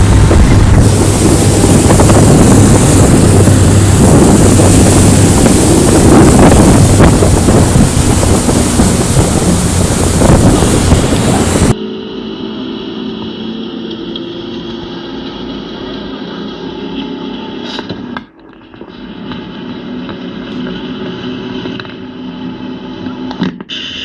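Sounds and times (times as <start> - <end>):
rushing water: 0.0 - 11.8
wind buffeting microphone: 0.0 - 11.8
motorboat engine running: 0.0 - 15.3.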